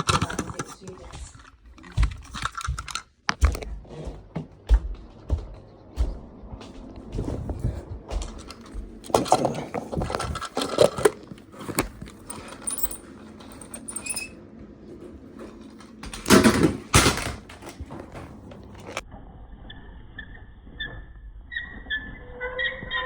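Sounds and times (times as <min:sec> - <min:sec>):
plastic parts clicking and rattling: 0:00.0 - 0:03.6, 0:08.3 - 0:14.3, 0:15.4 - 0:19.0.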